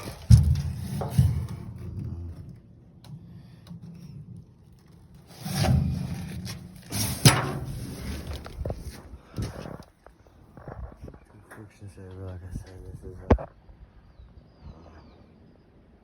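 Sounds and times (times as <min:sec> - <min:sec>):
rubbing and rustling: 0:04.9 - 0:10.0.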